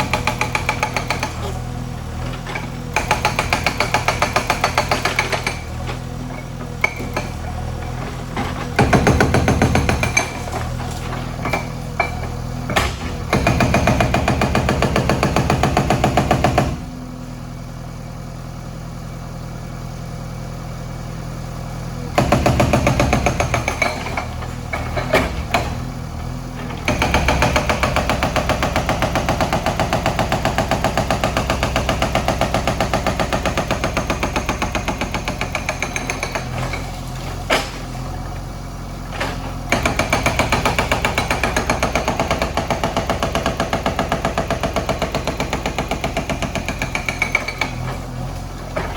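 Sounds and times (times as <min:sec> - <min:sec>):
hydraulic breaker hammering: 0:00.0 - 0:16.9, 0:22.2 - 0:38.4, 0:39.0 - 0:48.9
diesel engine running: 0:00.0 - 0:48.9.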